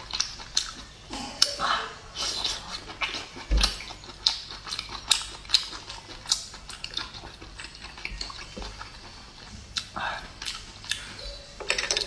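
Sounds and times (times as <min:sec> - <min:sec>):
wet chewing clicks and smacks: 0:00.0 - 0:01.6, 0:02.2 - 0:11.3.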